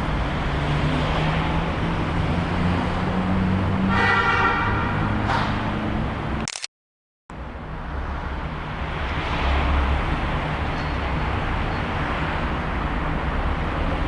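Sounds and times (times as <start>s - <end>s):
vehicle engine rumble: 0.0s - 3.8s.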